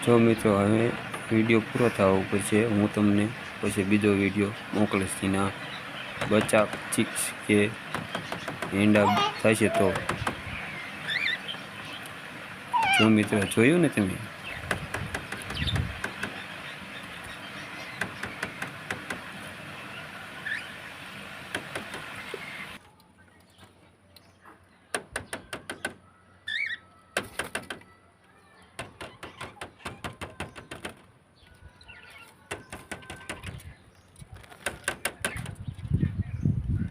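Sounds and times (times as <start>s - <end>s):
cockatiels chattering: 8.1s - 12.0s, 12.8s - 13.6s.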